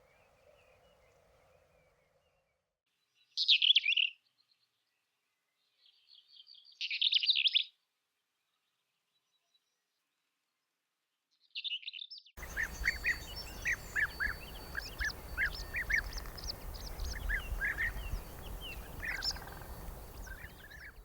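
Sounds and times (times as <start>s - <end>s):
birds singing: 12.4s - 21.0s
steady background hiss: 12.4s - 21.0s.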